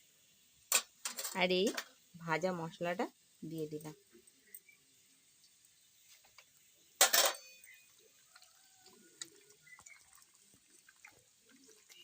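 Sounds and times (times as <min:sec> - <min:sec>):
faint clinks: 0:07.0 - 0:07.8.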